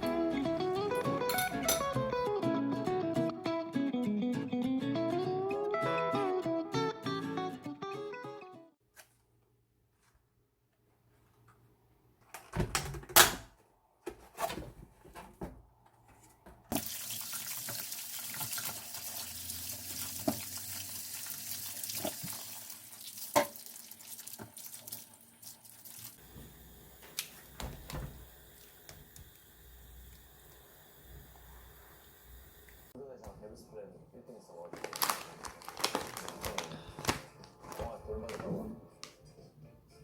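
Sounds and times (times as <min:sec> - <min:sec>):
tap water running into sink: 0:16.7 - 0:32.9.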